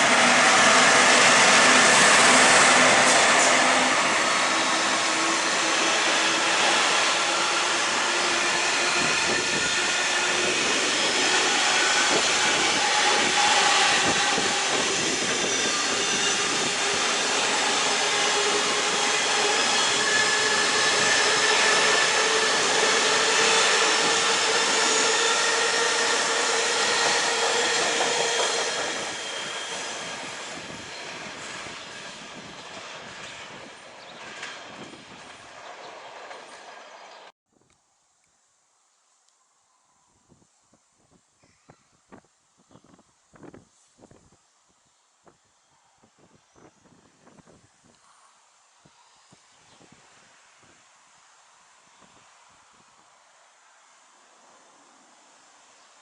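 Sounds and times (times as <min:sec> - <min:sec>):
drawn-out whining tones: 0:00.0 - 0:33.6
train wheels rumbling: 0:00.0 - 0:37.3.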